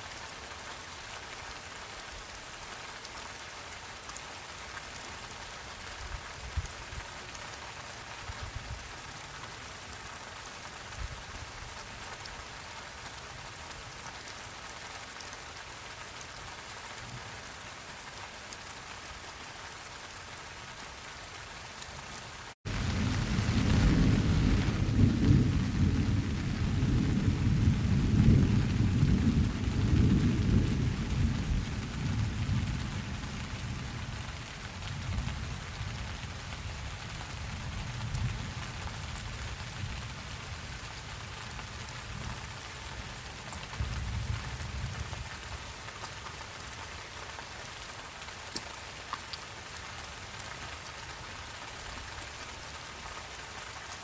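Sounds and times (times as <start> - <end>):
steady rain falling: 0.0 - 54.0
deep roll of thunder: 22.7 - 34.1.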